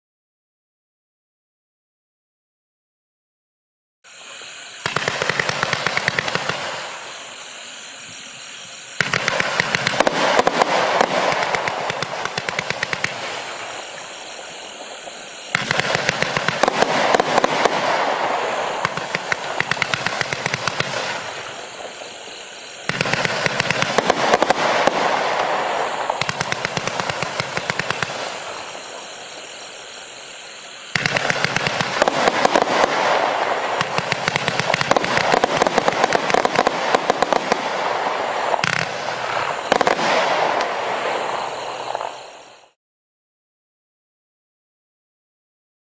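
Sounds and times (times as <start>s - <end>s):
fireworks popping in volleys: 4.8s - 7.1s, 9.0s - 28.8s, 31.0s - 42.4s.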